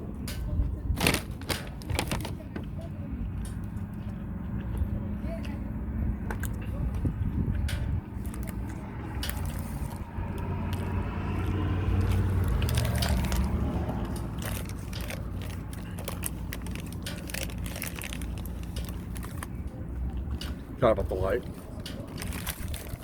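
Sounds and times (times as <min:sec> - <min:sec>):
person chewing food: 0:07.5 - 0:20.4.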